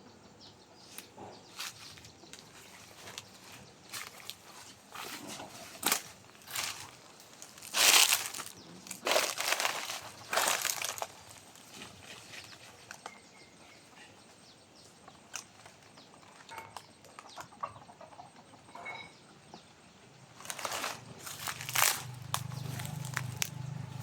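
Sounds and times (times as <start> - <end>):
footsteps crunching on dry ground: 0.9 - 13.1, 20.4 - 24.0.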